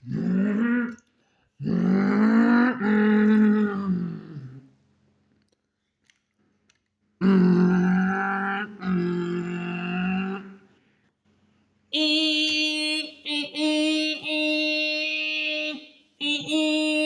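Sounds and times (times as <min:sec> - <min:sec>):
person making vocal machine drones: 0:00.0 - 0:04.8, 0:07.2 - 0:10.8, 0:11.9 - 0:17.0.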